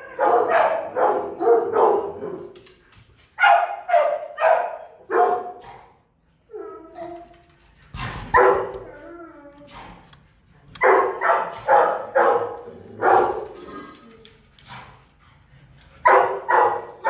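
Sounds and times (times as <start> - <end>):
dogs barking: 0.0 - 2.5, 3.4 - 6.8, 8.3 - 8.8, 10.8 - 13.8, 16.0 - 17.0.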